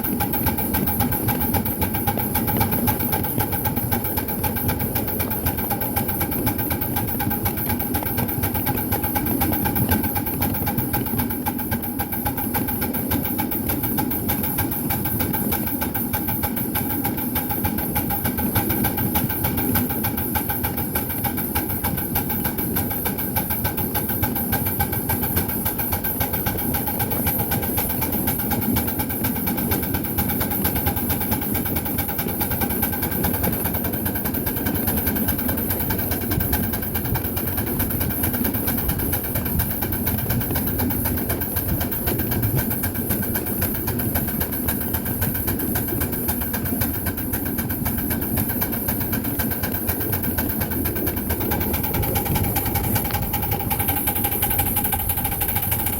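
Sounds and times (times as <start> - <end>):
steam locomotive running: 0.0 - 55.9
rapid ticking: 34.4 - 55.9.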